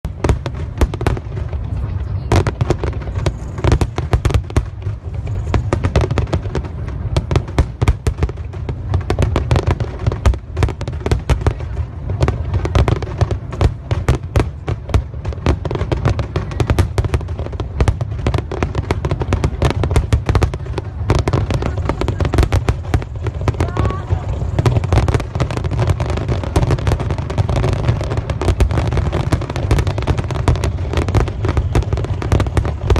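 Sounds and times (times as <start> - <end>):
fireworks bursting: 0.0 - 32.9.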